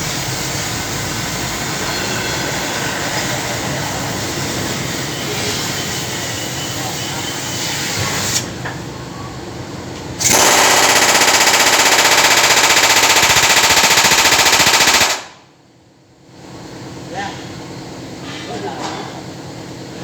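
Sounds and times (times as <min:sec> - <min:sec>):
pneumatic air tool rattling: 0:10.2 - 0:15.3.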